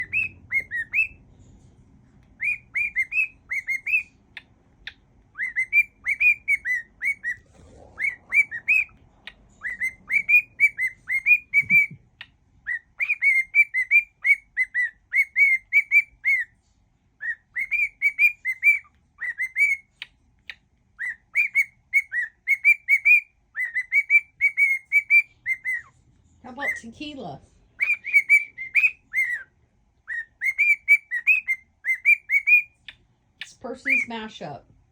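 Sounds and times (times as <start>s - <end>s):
bird whistling a tune: 0.0s - 1.2s, 2.4s - 4.2s, 4.8s - 7.4s, 8.0s - 8.9s, 9.6s - 12.0s, 12.6s - 16.5s, 17.2s - 20.0s, 21.0s - 25.9s, 27.8s - 32.9s.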